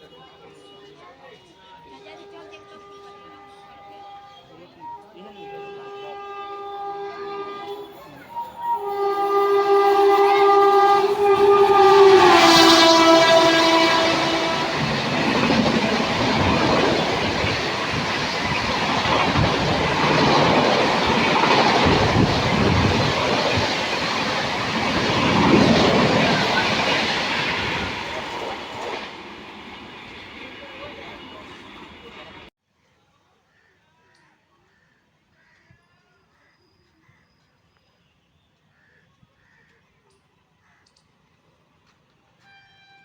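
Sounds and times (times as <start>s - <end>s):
train horn: 0.0s - 32.5s, 42.4s - 43.0s
train coaches rattling past: 0.2s - 32.5s.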